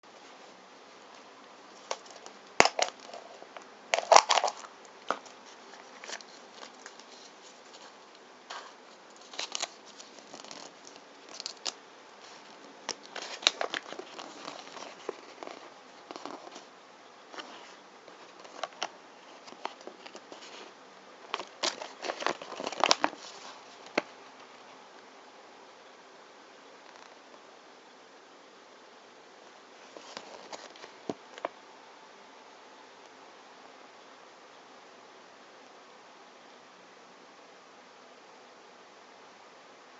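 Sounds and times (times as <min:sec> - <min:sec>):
plastic packaging crinkling: 0:01.7 - 0:16.7, 0:17.4 - 0:24.1, 0:29.9 - 0:31.5.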